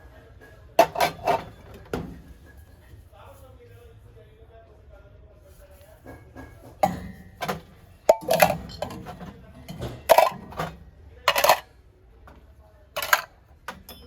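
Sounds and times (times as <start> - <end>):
brass items clinking: 0.8 - 1.7, 6.8 - 11.7, 13.0 - 14.0.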